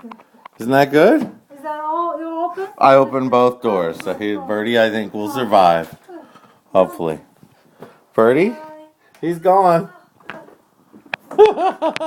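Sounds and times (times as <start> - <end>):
person laughing: 11.3 - 12.0.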